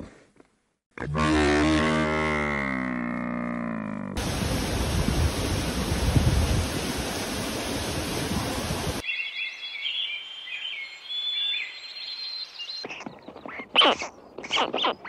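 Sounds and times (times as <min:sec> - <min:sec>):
rushing noise with low rumbling: 0:04.2 - 0:09.0
birds chirping: 0:09.0 - 0:15.0.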